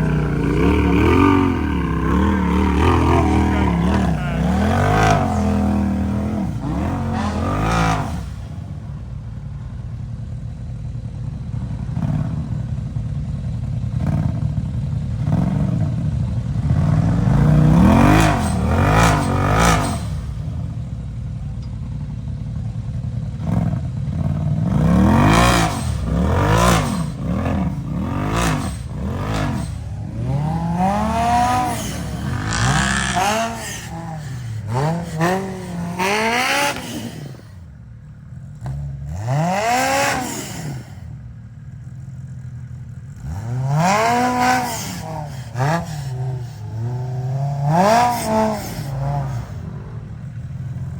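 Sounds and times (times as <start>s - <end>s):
engine revving in bursts: 0.0s - 9.0s, 14.0s - 20.8s, 23.4s - 37.7s, 38.6s - 41.2s, 43.0s - 50.9s.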